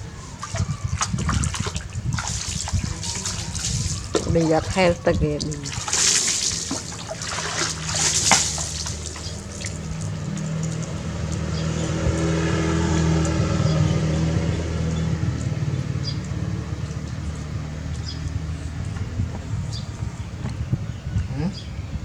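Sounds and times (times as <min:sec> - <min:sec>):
bath water splashing: 0:00.0 - 0:13.4
low motor hum: 0:00.0 - 0:22.0.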